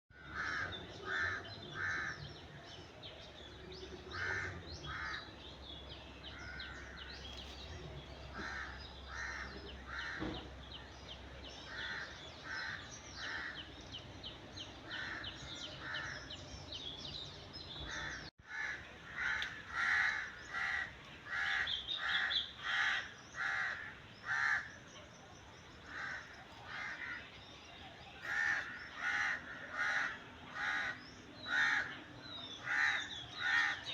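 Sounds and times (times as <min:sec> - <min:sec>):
crows cawing: 0:00.2 - 0:02.3, 0:04.1 - 0:05.3, 0:08.3 - 0:10.4, 0:11.7 - 0:13.7, 0:14.9 - 0:16.3, 0:17.9 - 0:24.8, 0:25.8 - 0:27.3, 0:28.2 - 0:33.9
small birds chirping: 0:00.2 - 0:33.9.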